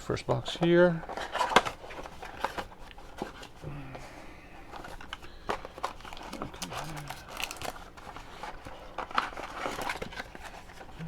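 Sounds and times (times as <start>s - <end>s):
plastic wrap crinkling and tearing: 4.7s - 11.0s.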